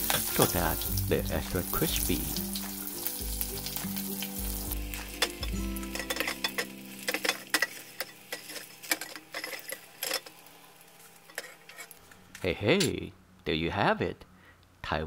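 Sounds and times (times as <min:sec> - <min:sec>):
background music: 0:00.0 - 0:09.1
metal skimmer scraping saucepan: 0:04.9 - 0:10.4, 0:11.0 - 0:13.0.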